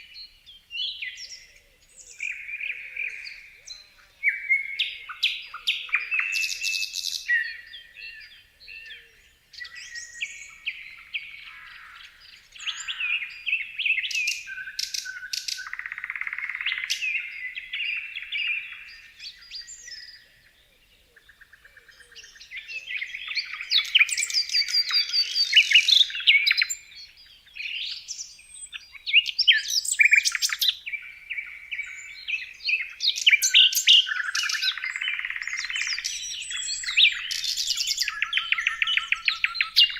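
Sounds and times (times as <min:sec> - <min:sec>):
birds chirping: 0:00.0 - 0:39.9
bird trill: 0:09.6 - 0:20.2, 0:21.2 - 0:39.9.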